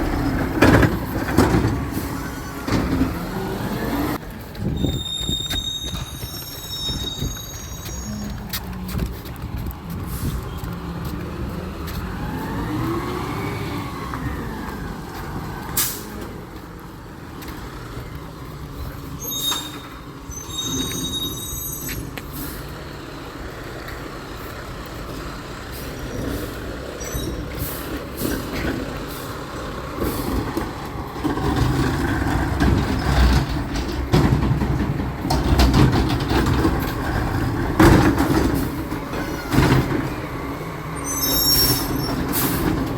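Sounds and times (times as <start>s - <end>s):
recycling truck engine running: 0.0s - 42.9s
short high squeals: 4.8s - 8.4s, 19.2s - 22.1s, 41.0s - 42.6s.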